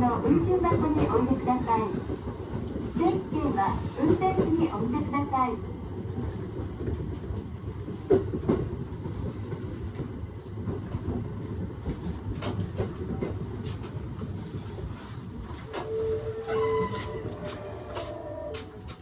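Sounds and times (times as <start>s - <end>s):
train wheels rumbling on rail: 0.0s - 19.0s
clacks over rail joints: 6.0s - 19.0s.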